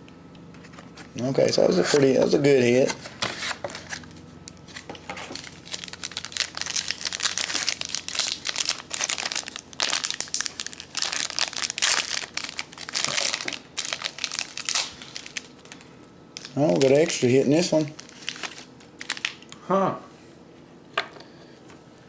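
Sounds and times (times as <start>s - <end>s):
wrapper crinkling and tearing: 4.7s - 19.5s.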